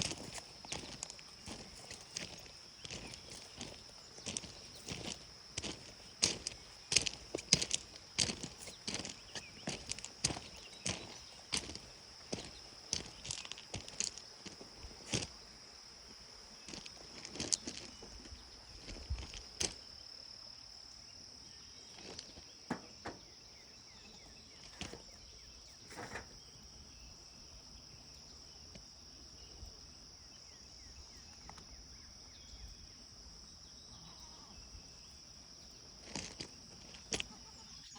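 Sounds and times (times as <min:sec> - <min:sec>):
crickets chirping: 0:00.0 - 0:37.9
sharp clicks and knocks: 0:22.7 - 0:23.3.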